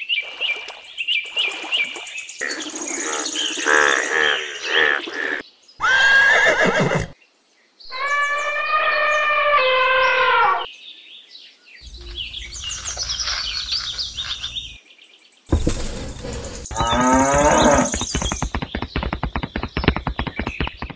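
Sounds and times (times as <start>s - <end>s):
horse whinnying: 5.8s - 7.2s
farm animal calls: 7.9s - 10.7s
hoof clip-clops: 15.5s - 20.9s.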